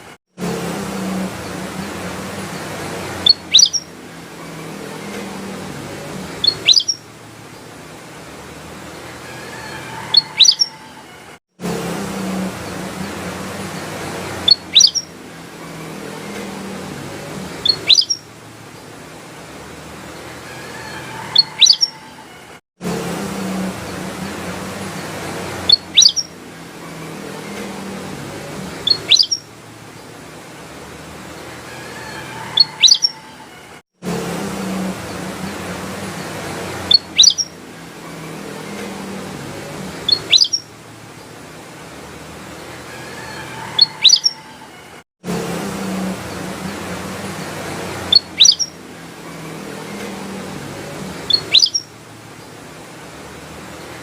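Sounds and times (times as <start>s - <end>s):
bulbul calling: 3.2s - 3.9s, 6.4s - 7.0s, 10.0s - 10.9s, 14.4s - 15.1s, 17.6s - 18.2s, 21.2s - 22.0s, 25.7s - 26.3s, 28.8s - 29.5s, 32.6s - 33.2s, 36.9s - 37.6s, 40.0s - 40.7s, 43.7s - 44.5s, 48.1s - 48.8s, 51.2s - 51.9s.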